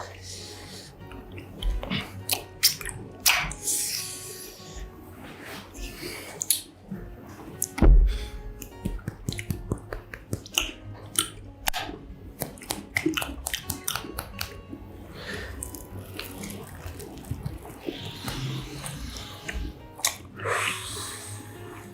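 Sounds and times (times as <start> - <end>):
soft chewing: 8.5 - 20.8.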